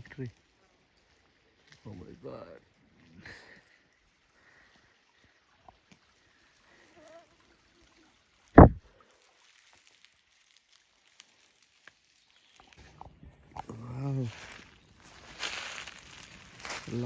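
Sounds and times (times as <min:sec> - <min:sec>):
loud low thump: 0:08.6 - 0:08.8.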